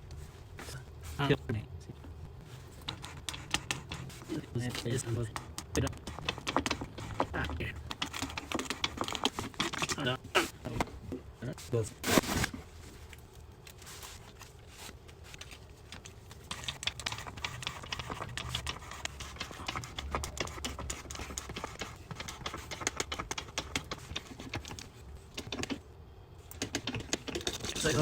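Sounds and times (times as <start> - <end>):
rapid clicking and tapping: 2.8 - 10.1, 15.9 - 25.8, 26.5 - 28.0.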